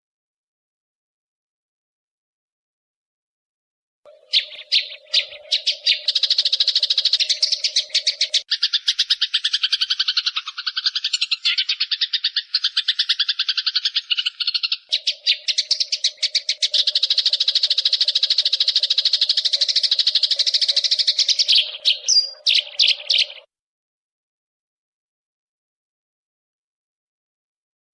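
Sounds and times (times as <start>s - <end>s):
sparrows chattering: 4.1s - 23.5s.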